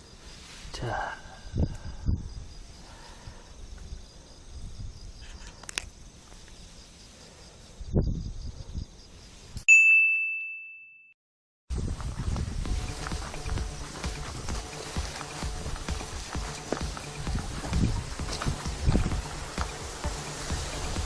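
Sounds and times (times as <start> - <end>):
faint insect buzz: 0.0 - 9.6
bright ding: 9.7 - 11.2
low handling thumps: 11.9 - 21.0.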